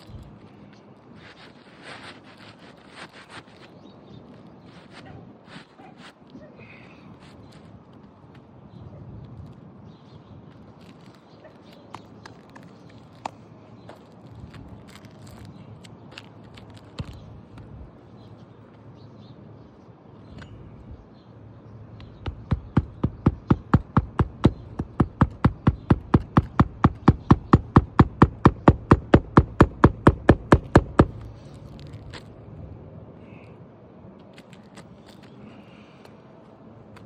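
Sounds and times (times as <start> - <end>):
hammer driving nails: 22.1 - 31.3.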